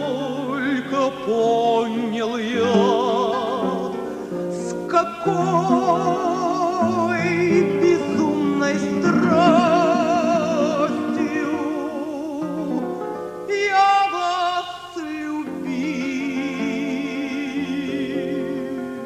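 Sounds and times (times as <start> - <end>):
woman singing with vibrato: 0.0 - 12.8
instrumental accompaniment: 2.6 - 13.5.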